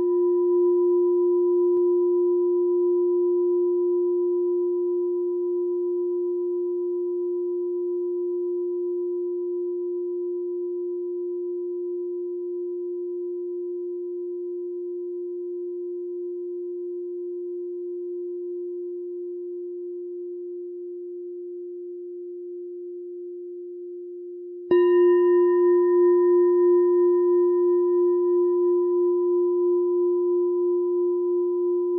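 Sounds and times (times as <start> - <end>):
meditation bell ringing: 24.7 - 31.9.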